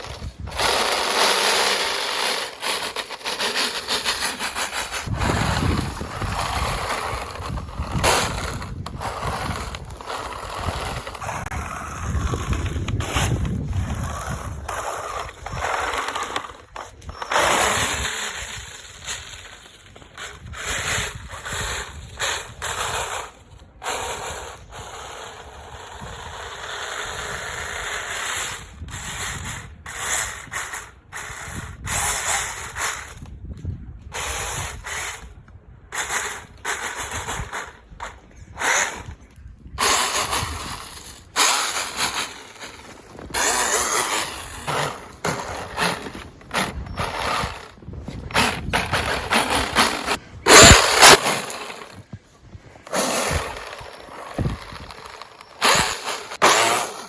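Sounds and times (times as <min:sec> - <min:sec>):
electric motor in throttle bursts: 0:00.0 - 0:13.0, 0:39.8 - 0:47.7, 0:48.3 - 0:52.0, 0:52.9 - 0:57.0.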